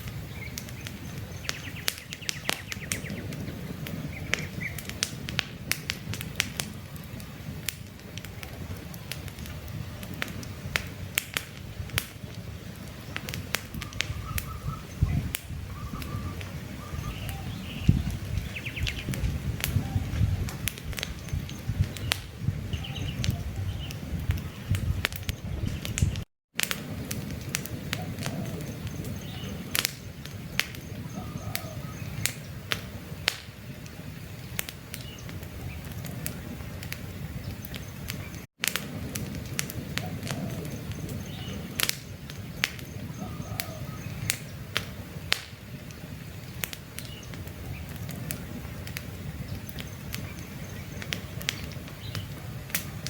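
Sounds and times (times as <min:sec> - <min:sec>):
campfire crackling: 0:00.0 - 0:53.0
flames rushing: 0:00.0 - 0:53.0
faint bird chirps: 0:13.8 - 0:19.2, 0:19.8 - 0:26.1, 0:30.4 - 0:32.5, 0:40.0 - 0:44.5.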